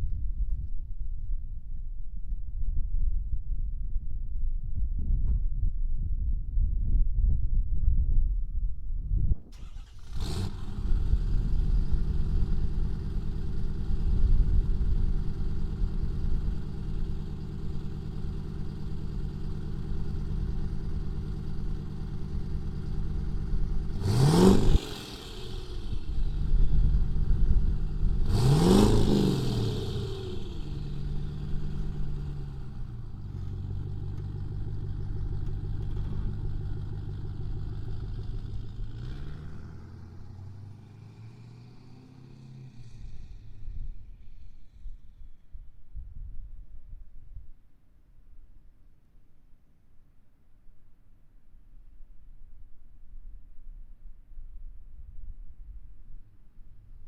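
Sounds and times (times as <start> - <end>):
diesel truck engine starting and revving: 9.4 - 44.6.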